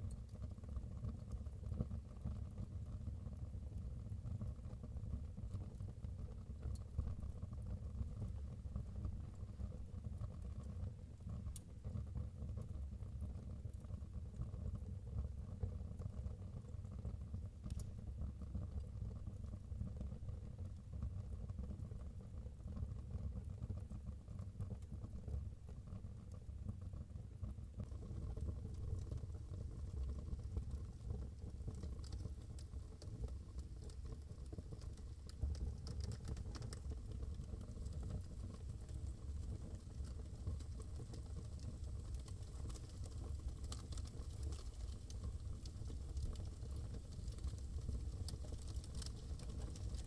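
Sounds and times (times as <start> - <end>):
fire crackling: 27.8 - 50.0
fire popping: 27.8 - 50.0
wood fire rumbling: 27.8 - 50.0.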